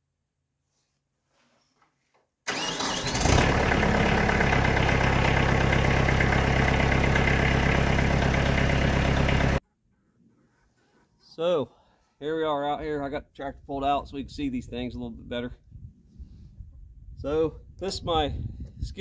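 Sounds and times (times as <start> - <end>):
tractor engine starting and idling: 2.5 - 9.6.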